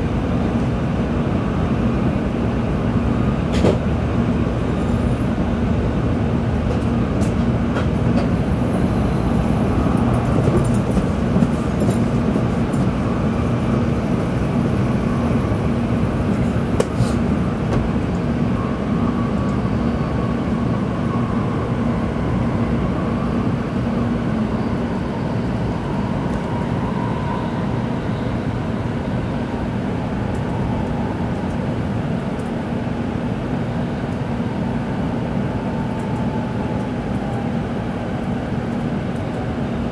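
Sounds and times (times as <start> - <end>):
train rumble inside cabin: 0.0 - 39.9.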